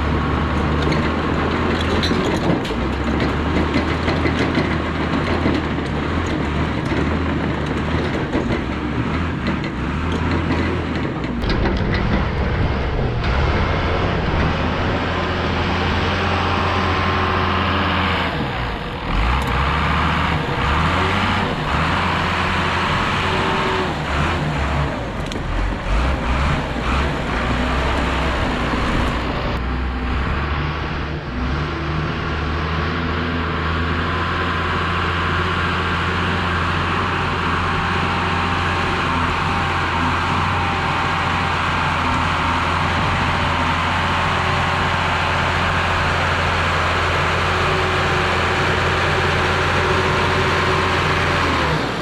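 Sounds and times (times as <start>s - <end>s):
dozer diesel engine under load: 0.0s - 52.0s
rattles and clanks: 0.4s - 17.6s.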